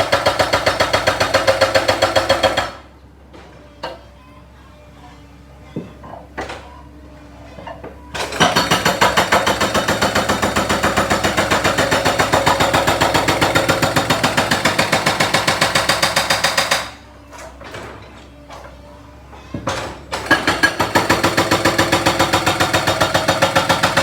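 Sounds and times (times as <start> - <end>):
jackhammer breaking concrete: 0.0 - 2.8, 8.2 - 17.0, 20.2 - 24.0.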